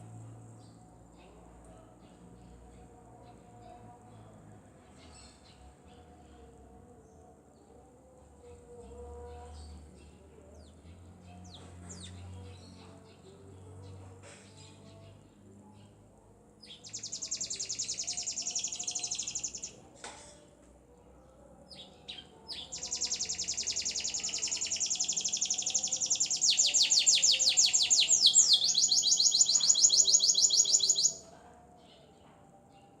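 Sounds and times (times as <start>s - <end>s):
bird singing rolling trills: 16.6s - 19.9s, 21.6s - 32.1s.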